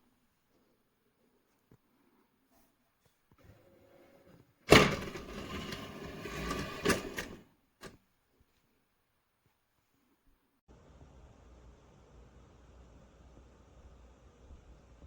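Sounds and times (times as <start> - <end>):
scraping and clattering: 4.0 - 8.0.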